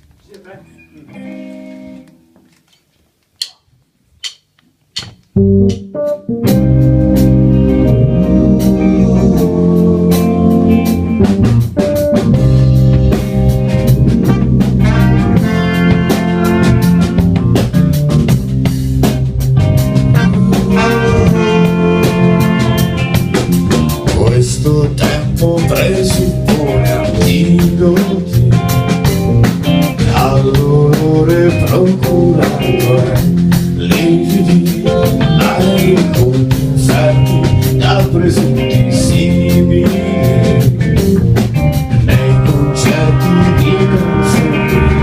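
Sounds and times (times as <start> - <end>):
band playing pop-rock: 5.0 - 45.0
held chord: 19.7 - 23.9.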